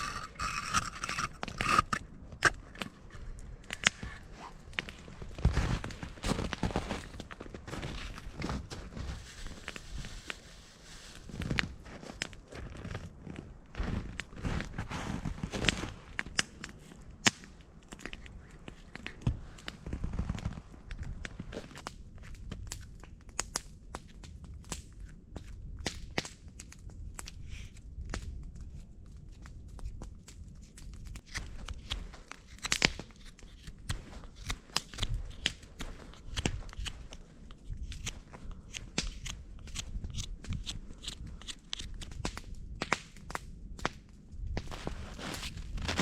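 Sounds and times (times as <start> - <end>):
campfire crackling: 0.0 - 6.3, 30.2 - 46.0.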